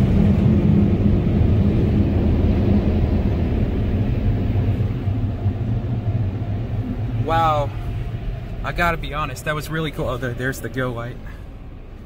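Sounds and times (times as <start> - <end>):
car wash equipment rumble: 0.0 - 12.0.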